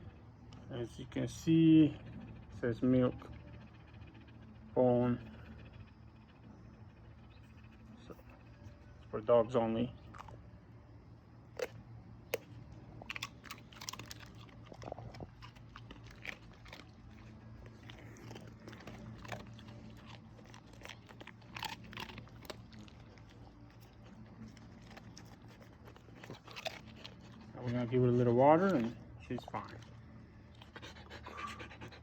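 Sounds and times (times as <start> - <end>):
steady low hum: 0.0 - 32.0
dog crunching biscuit: 10.0 - 10.5, 11.4 - 32.0.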